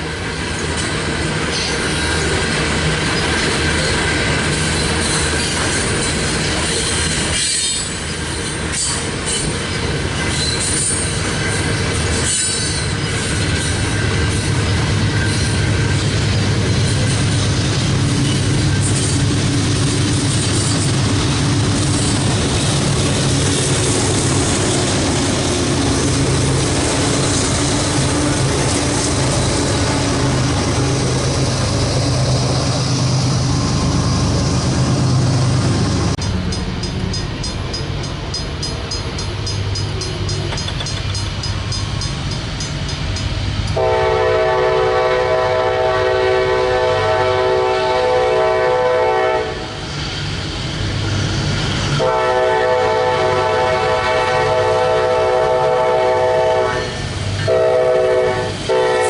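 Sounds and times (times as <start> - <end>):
freight train passing: 0.0 - 59.0
locomotive air horn: 43.8 - 49.8, 52.0 - 59.0.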